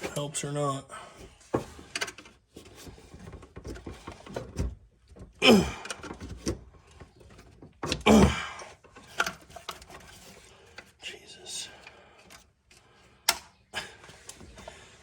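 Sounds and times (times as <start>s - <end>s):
faint clicks and handling noise: 1.4s - 8.0s, 8.6s - 15.0s
man grunting with effort: 5.4s - 6.0s, 8.0s - 8.8s.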